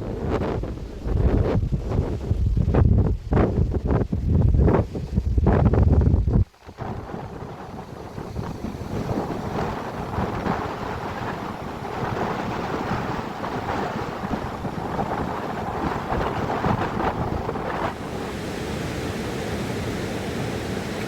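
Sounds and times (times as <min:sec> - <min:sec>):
wind buffeting microphone: 0:00.0 - 0:21.0
rushing river water: 0:06.6 - 0:21.0.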